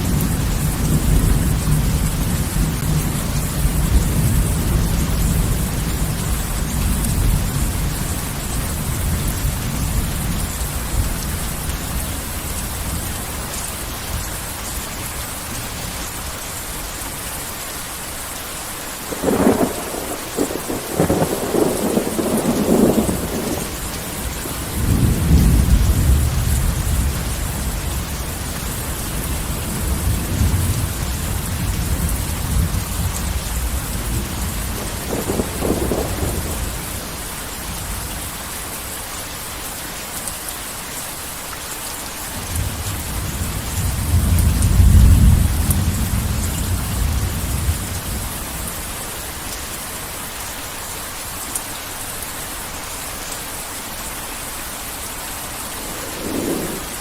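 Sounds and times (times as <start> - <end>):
thunderclap and rolling rumble: 0.0 - 13.2, 19.1 - 38.3, 42.4 - 48.9, 55.5 - 57.0
heavy rain: 0.0 - 57.0.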